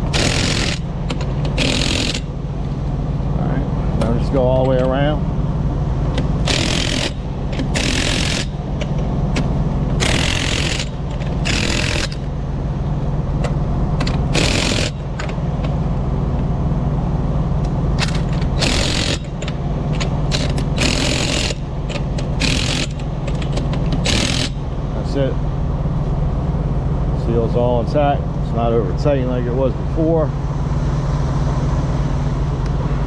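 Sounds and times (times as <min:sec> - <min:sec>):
low engine hum: 0:08.5 - 0:33.0
socket ratchet clicking: 0:18.0 - 0:24.6.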